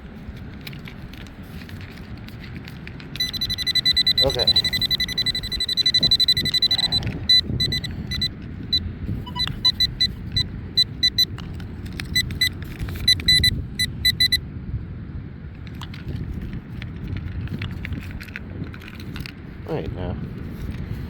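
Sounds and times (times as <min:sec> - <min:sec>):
wind rumble on microphone: 0:00.0 - 0:21.0
metal detector beeping: 0:03.1 - 0:14.4.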